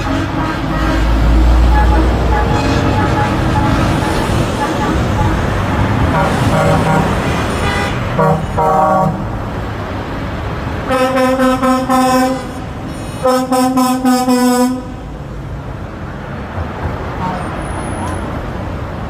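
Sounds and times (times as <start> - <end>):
truck horn blasts: 0.0 - 9.3, 10.8 - 15.0
road traffic noise: 0.0 - 19.0.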